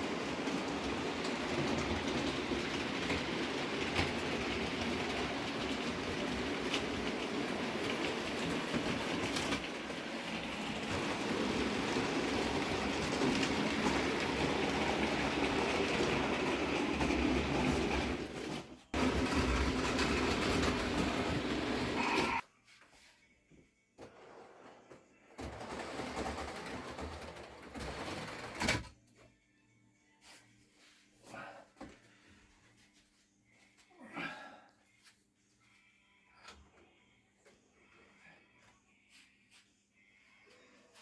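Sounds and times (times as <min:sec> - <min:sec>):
model train running on track: 0:00.0 - 0:09.3, 0:10.4 - 0:18.3, 0:19.0 - 0:22.4.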